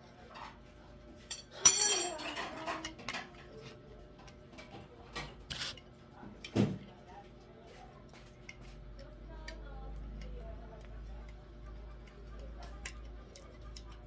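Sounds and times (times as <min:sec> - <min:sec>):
metal rattling: 0:01.3 - 0:02.4
metal objects clinking: 0:01.3 - 0:02.8.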